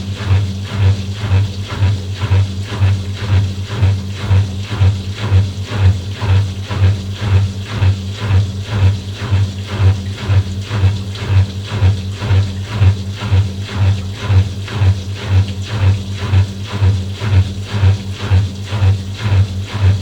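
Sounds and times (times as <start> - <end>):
washing machine motor hum: 0.0 - 20.0
water swishing in drum: 0.0 - 20.0.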